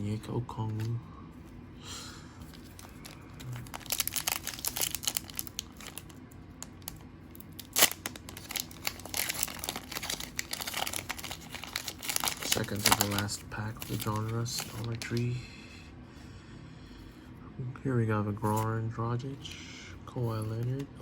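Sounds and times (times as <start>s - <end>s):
card pack wrapper crinkling: 2.4s - 15.2s
wrapper ripping: 2.5s - 15.2s.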